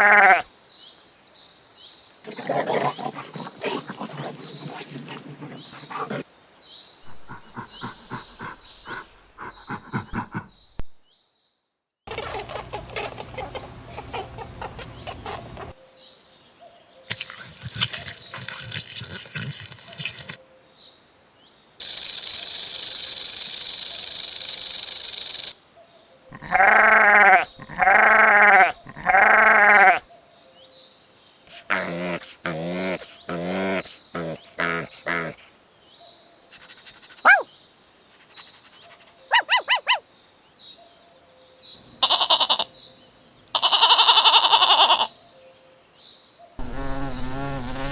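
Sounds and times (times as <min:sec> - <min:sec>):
animal noises: 0:00.0 - 0:00.5, 0:02.2 - 0:06.4, 0:07.0 - 0:11.0, 0:12.1 - 0:15.8, 0:17.1 - 0:20.4, 0:26.3 - 0:30.1, 0:31.3 - 0:41.1, 0:41.7 - 0:45.2, 0:46.6 - 0:47.9
loud bleats: 0:00.0 - 0:00.5, 0:26.3 - 0:30.0, 0:42.0 - 0:42.7, 0:43.6 - 0:45.1.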